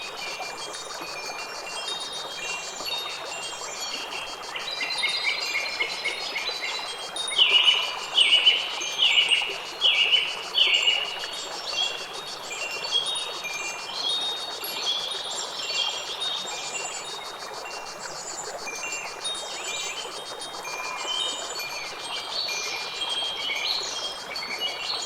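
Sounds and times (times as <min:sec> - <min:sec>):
wind chimes tinkling: 0:18.7 - 0:25.0.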